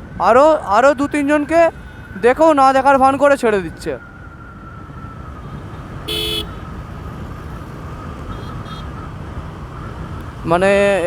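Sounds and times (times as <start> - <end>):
road traffic passing: 0.0 - 11.0
vehicle horn toot: 6.1 - 6.6.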